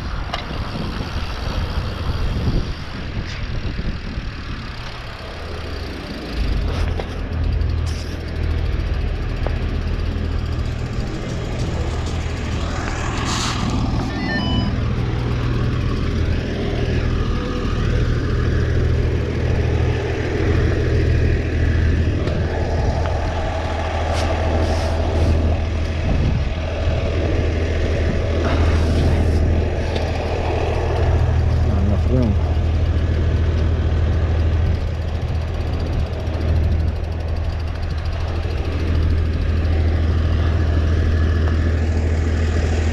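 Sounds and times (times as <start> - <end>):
truck engine running: 0.0 - 42.9
high beeps: 14.0 - 14.8.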